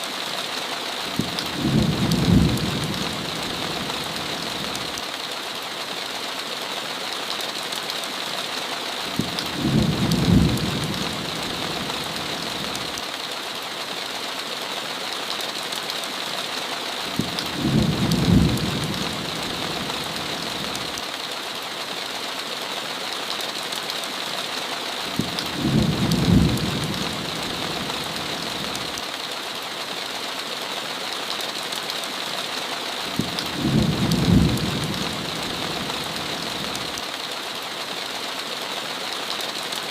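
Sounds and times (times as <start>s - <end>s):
heavy rain on a window: 0.0s - 39.9s
low thunder rumble: 1.2s - 3.9s, 9.6s - 11.9s, 17.6s - 19.9s, 25.6s - 28.1s, 33.2s - 36.2s.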